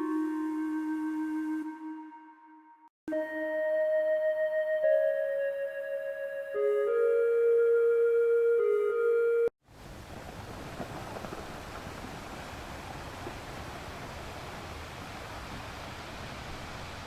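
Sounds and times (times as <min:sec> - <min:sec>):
wind: 0:00.0 - 0:02.2, 0:09.6 - 0:17.0
waves washing: 0:09.7 - 0:17.0.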